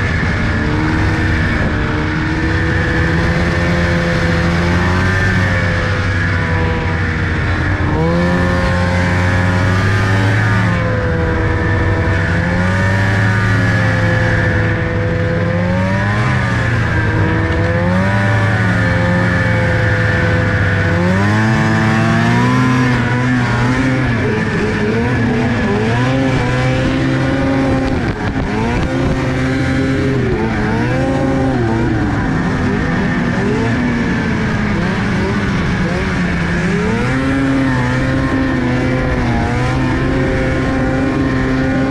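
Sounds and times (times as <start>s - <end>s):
car engine revving: 0.0s - 41.9s.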